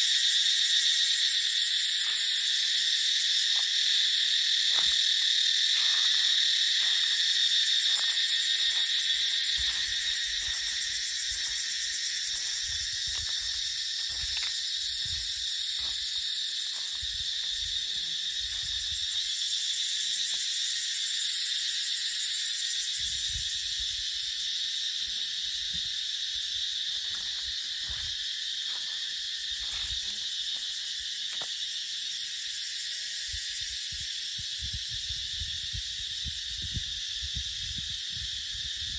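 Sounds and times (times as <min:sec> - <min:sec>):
cicadas buzzing: 0:00.0 - 0:38.9
wind on microphone: 0:23.0 - 0:24.0, 0:33.6 - 0:38.9.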